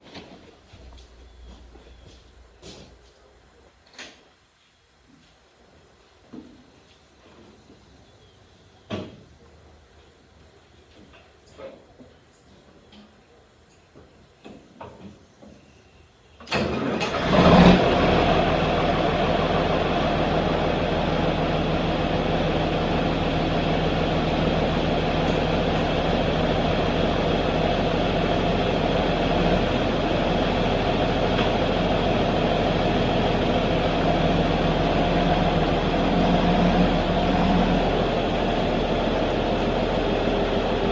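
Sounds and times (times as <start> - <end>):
diesel tractor engine starting and idling: 16.4 - 40.9.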